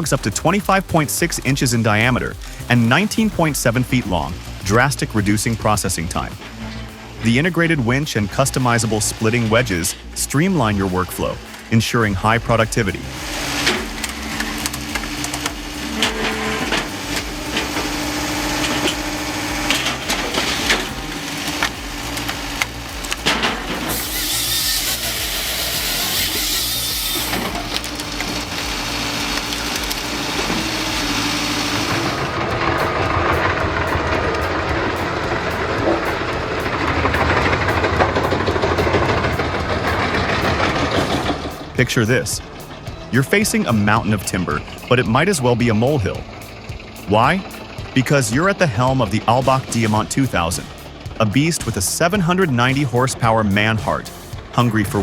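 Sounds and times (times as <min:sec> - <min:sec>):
firewood processor engine running: 0:00.0 - 0:55.0
louder machine running: 0:00.0 - 0:55.0
loud hydraulic hiss: 0:12.8 - 0:41.8.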